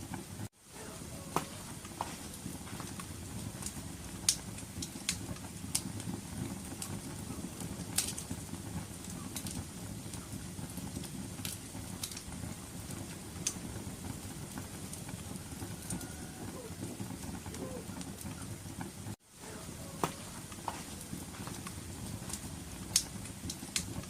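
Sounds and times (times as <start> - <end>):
fire crackles and pops: 0.0 - 24.0
wood fire burning: 0.0 - 24.0.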